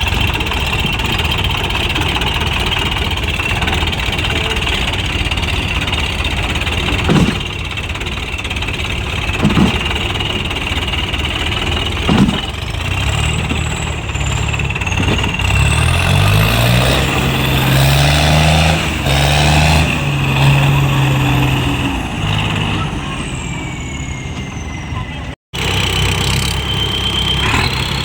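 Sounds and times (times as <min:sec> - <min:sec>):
tractor diesel engine: 0:00.0 - 0:28.0.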